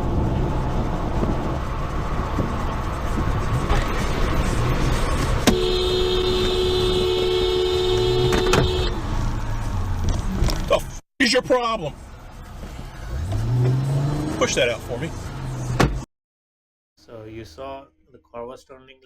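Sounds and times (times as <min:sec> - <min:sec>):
car road and engine noise: 0:00.0 - 0:16.1
car horn held: 0:05.5 - 0:09.0.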